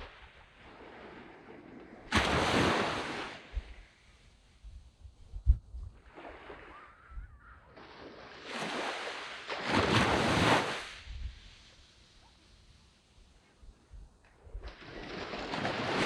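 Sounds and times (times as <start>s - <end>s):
waves washing up a beach: 0.0s - 4.4s, 6.0s - 13.9s, 14.6s - 16.0s
wind buffeting the microphone: 3.1s - 7.6s, 9.9s - 11.9s.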